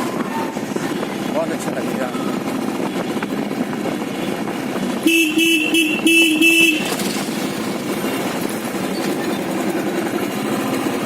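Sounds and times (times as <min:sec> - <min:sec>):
engine and road noise: 0:00.0 - 0:11.0
vehicle horn honking: 0:05.0 - 0:07.0.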